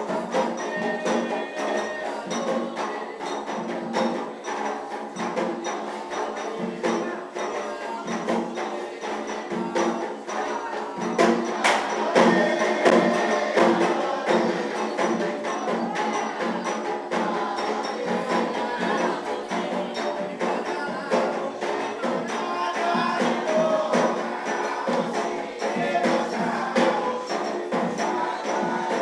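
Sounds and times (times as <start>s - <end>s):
drums and percussion rhythm: 0.0s - 29.0s
melody over drums: 10.8s - 29.0s.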